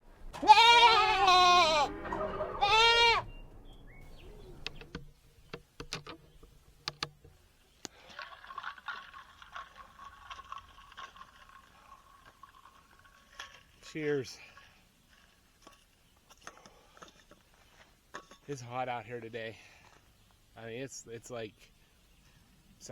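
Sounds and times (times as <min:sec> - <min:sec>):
goat bleating: 0:00.3 - 0:03.3.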